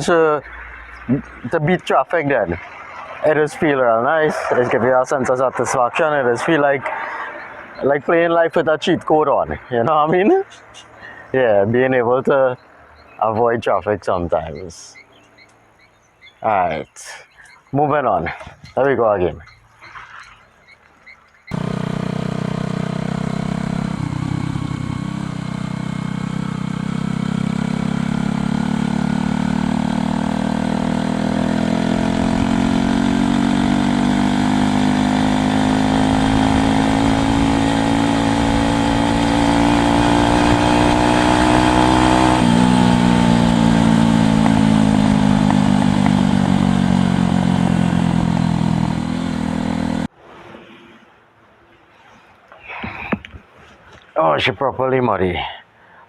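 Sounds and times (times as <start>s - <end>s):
motorcycle engine running: 21.5s - 50.1s.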